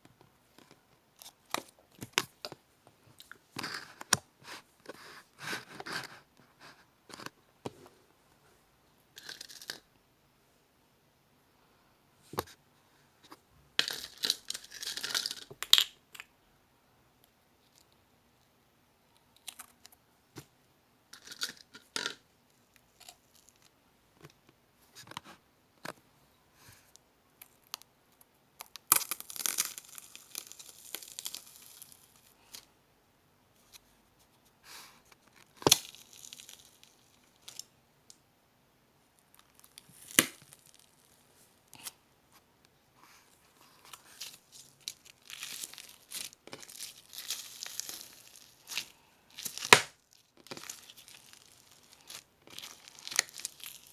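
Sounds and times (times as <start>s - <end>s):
hands kneading crunchy slime: 43.9s - 53.9s
sticky crackles and crunchy pops: 49.4s - 53.9s.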